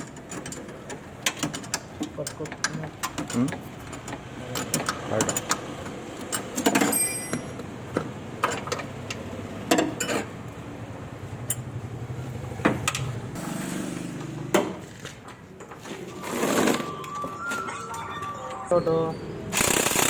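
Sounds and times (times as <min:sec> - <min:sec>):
metal tools clanking: 0:06.3 - 0:07.7.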